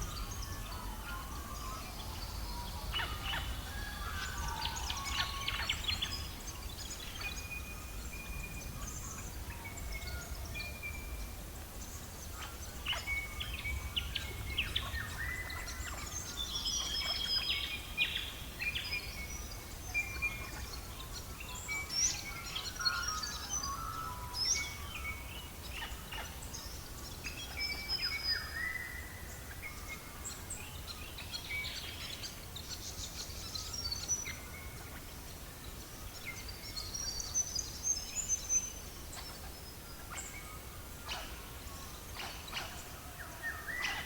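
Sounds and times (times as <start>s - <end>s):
birds whistling and chirping: 40.0s - 44.0s.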